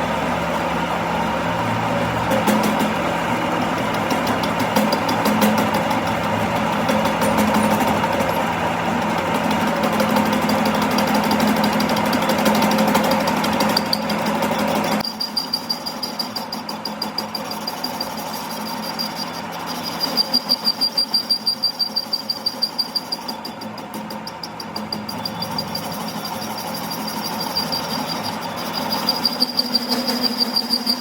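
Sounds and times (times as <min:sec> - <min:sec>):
machine running loudly: 0:00.0 - 0:31.0
thin high whine: 0:25.0 - 0:31.0.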